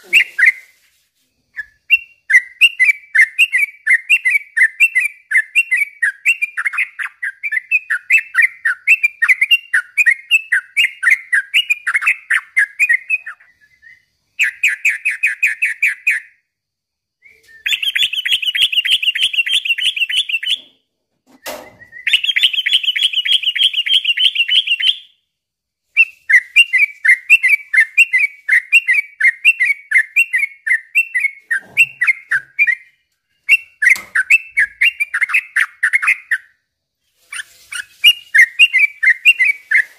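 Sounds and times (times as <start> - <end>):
bird singing with fast trills: 1.6 - 16.4, 17.6 - 20.7, 21.8 - 25.2, 26.0 - 36.6.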